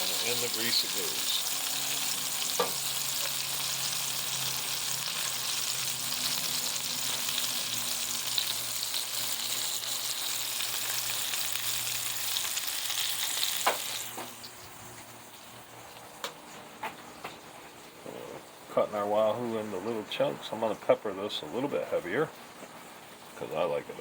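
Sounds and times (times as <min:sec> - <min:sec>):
fish sizzling in a pan: 0:00.0 - 0:16.3.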